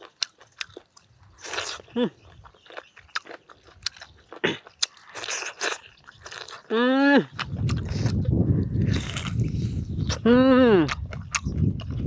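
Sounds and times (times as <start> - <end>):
wet chewing and lip-smacking: 0.0 - 12.0.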